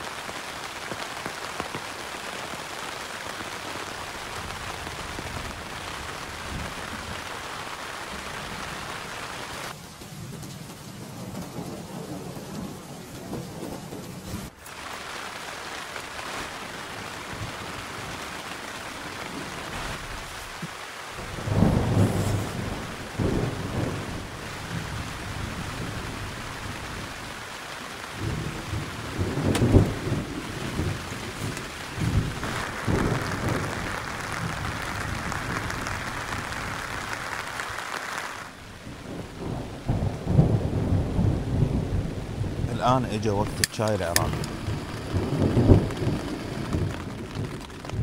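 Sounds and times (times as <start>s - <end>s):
rain falling on a tent: 0.0s - 48.0s
thunder rolling: 21.2s - 27.5s, 28.1s - 37.8s, 38.5s - 48.0s.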